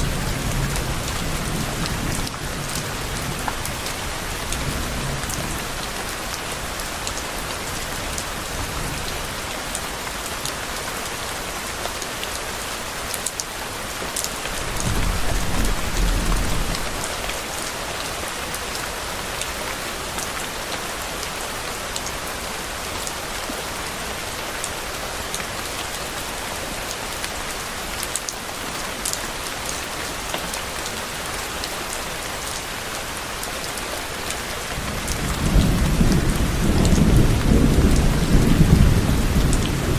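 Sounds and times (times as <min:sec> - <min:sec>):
steady rain falling: 0:00.0 - 0:39.9
distant thunder rumble: 0:14.5 - 0:17.5.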